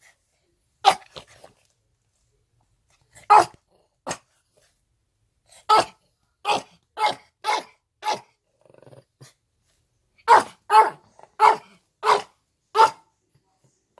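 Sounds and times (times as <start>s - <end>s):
dog growling quietly: 8.5s - 9.4s
dog barking sharply: 10.3s - 13.1s.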